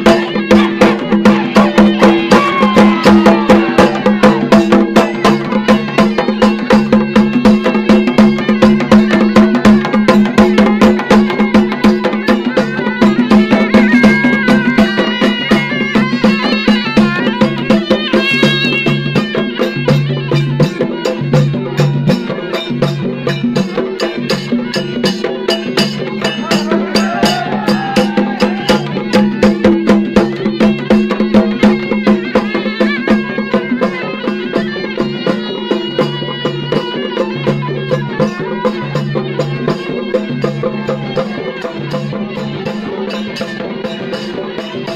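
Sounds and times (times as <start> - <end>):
fast drumming: 0.0 - 44.9
wavering melody: 0.0 - 44.9.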